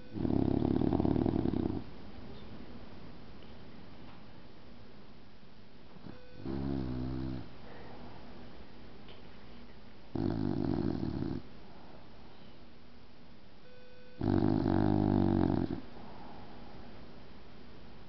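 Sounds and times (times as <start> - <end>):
dog snoring: 0.1 - 1.9, 6.0 - 7.5, 10.1 - 11.5, 14.2 - 16.0.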